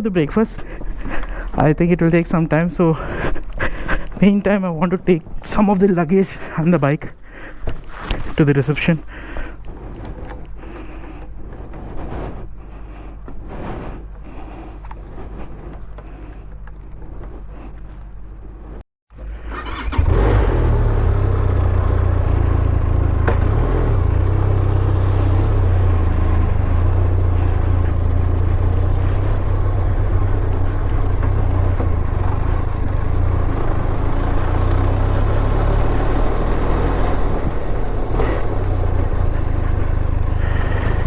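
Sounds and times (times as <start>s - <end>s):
motorcycle engine droning: 0.0s - 41.0s.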